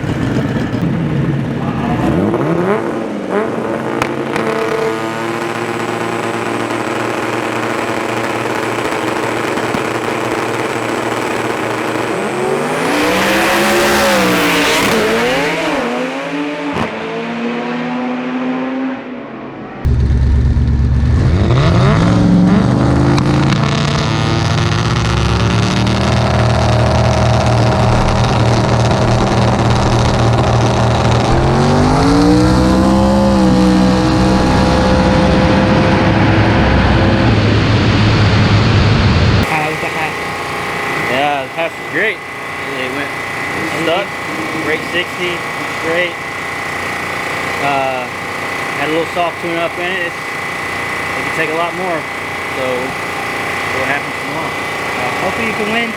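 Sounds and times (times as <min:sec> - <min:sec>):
race car engines revving: 0:00.0 - 0:55.9
loud hiss: 0:39.4 - 0:55.9.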